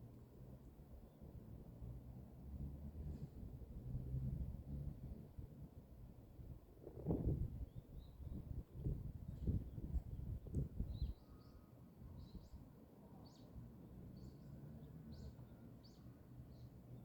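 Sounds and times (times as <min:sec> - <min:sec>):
faint outdoor background noise: 0:00.0 - 0:17.0
small bird chirping: 0:10.9 - 0:12.6.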